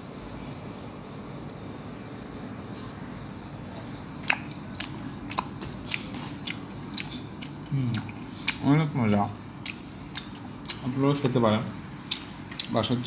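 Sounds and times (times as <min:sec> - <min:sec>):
steady low background hum: 0:00.0 - 0:13.0
sharp chewing clicks: 0:03.6 - 0:11.0, 0:12.0 - 0:13.0.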